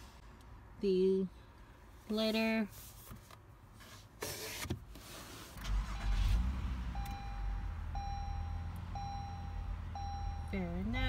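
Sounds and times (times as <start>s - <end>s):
car engine starting and idling: 4.8s - 11.0s.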